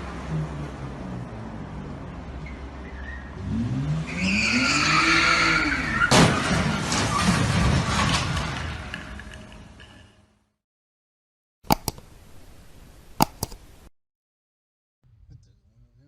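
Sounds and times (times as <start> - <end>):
debris clattering: 6.1 - 10.0.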